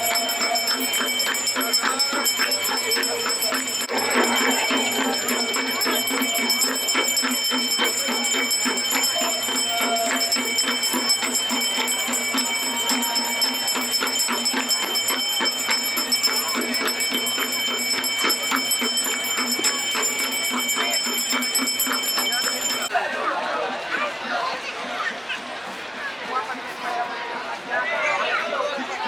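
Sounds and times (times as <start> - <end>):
hand bells ringing: 0.0 - 22.9.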